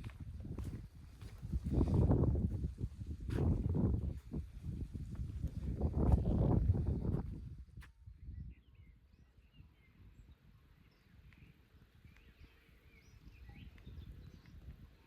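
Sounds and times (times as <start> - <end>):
forest birds chirping: 8.1 - 15.0.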